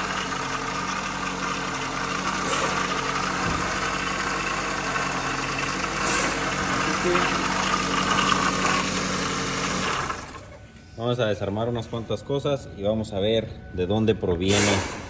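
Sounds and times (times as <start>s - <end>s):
car engine idling with grinding: 0.0s - 12.0s.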